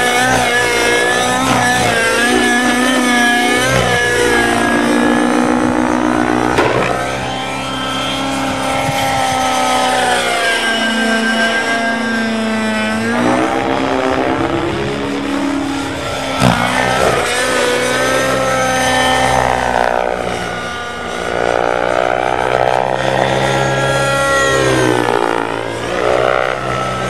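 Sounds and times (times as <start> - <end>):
low drone: 0.0 - 27.0
model helicopter engine revving: 0.0 - 27.0
sharp knock: 6.6 - 7.1.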